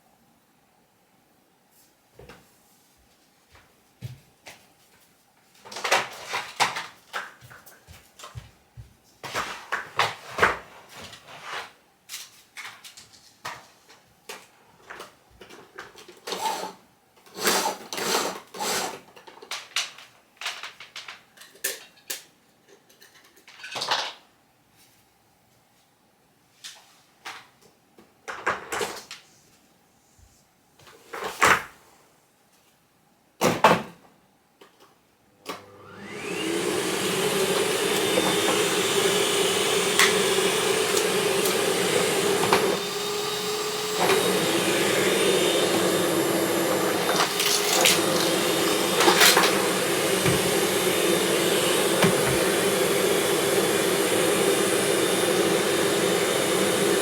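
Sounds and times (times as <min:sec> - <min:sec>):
vacuum cleaner running: 0:17.4 - 0:19.0, 0:35.5 - 0:57.0.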